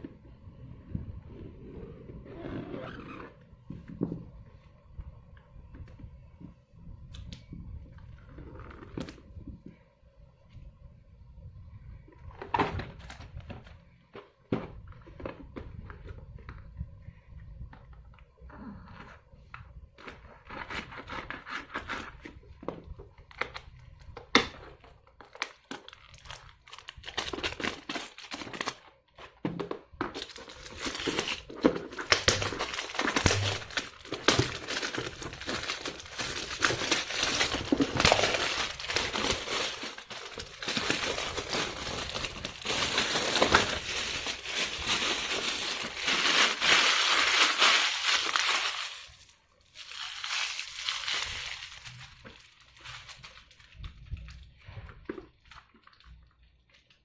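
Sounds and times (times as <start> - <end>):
packaging crinkling and rustling: 24.4 - 57.0.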